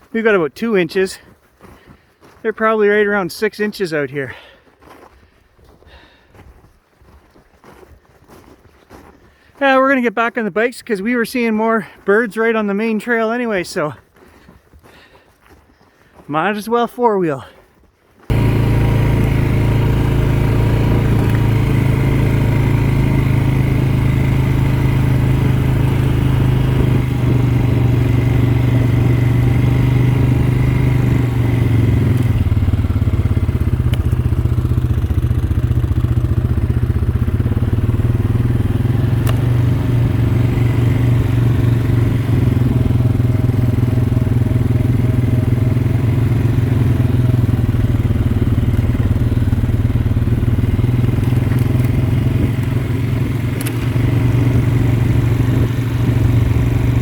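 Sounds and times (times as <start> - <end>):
atv engine drone: 18.2 - 57.0.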